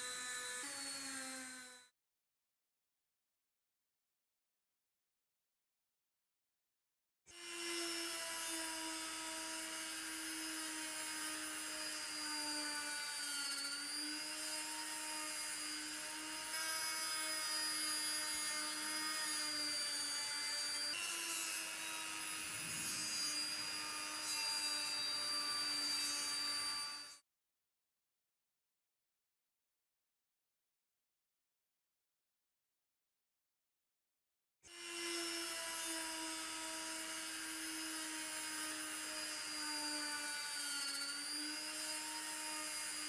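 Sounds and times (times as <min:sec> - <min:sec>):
power tool motor whining: 0:07.4 - 0:27.2.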